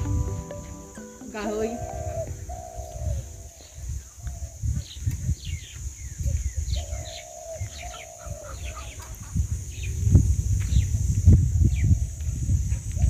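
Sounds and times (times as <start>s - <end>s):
longer lower bird calls: 0.0s - 10.0s
birds chirping: 0.0s - 10.1s
wind buffeting microphone: 0.0s - 13.0s.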